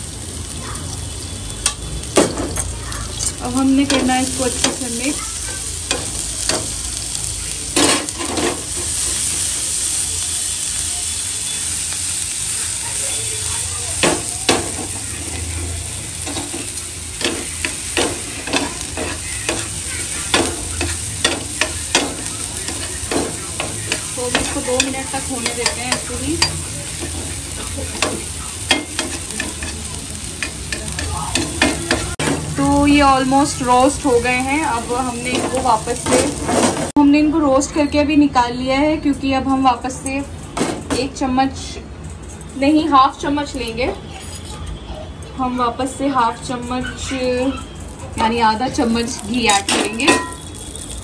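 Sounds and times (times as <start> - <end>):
vegetables sizzling on griddle: 0.0 - 37.0, 45.8 - 51.0
spatula scraping and tapping pan: 16.3 - 27.4, 28.0 - 32.5.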